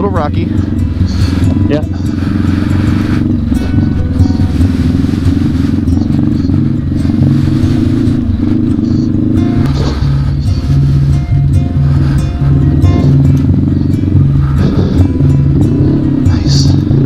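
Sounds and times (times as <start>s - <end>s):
background music: 0.0s - 17.0s
motorcycle engine running: 0.0s - 17.0s.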